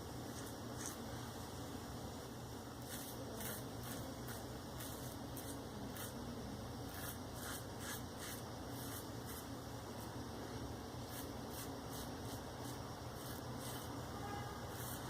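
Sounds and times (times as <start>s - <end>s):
razor scraping stubble: 0.3s - 1.0s, 2.8s - 6.2s, 6.9s - 9.5s, 11.0s - 14.0s, 14.7s - 15.0s.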